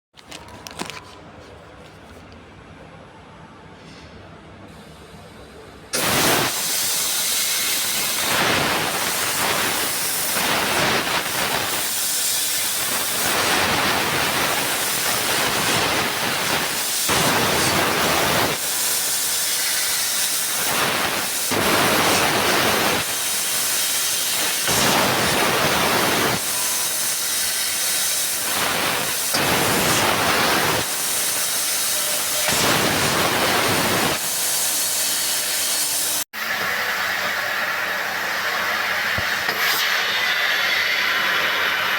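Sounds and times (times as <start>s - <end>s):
laser cutting gas hiss: 6.0s - 36.2s.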